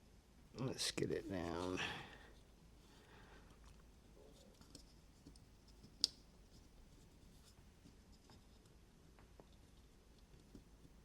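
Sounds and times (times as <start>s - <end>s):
small clicks and scrapes: 2.3s - 11.0s.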